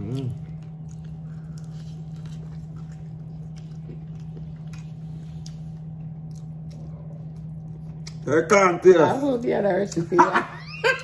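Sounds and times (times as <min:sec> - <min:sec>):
person chewing food: 0:00.0 - 0:08.3
steady low hum: 0:00.0 - 0:11.0.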